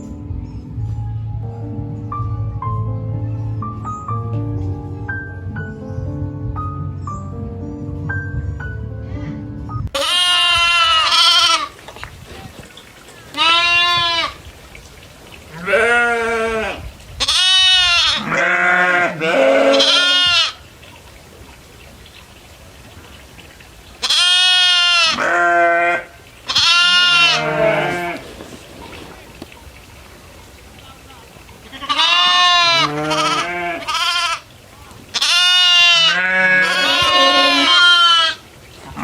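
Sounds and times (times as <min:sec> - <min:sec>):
goats bleating: 0:10.0 - 0:11.8, 0:13.3 - 0:14.4, 0:15.5 - 0:20.6, 0:24.0 - 0:28.3, 0:31.6 - 0:34.5, 0:35.1 - 0:39.0.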